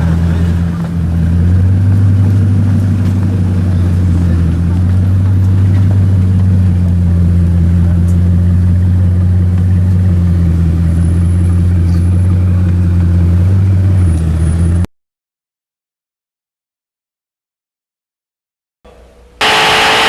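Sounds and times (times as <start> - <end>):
car engine humming: 0.0 - 14.9, 19.4 - 20.0.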